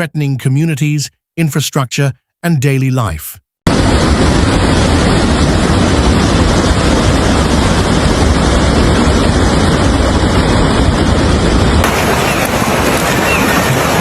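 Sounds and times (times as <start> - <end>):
deep rumble: 3.7 - 14.0
floodwater rushing: 11.8 - 14.0.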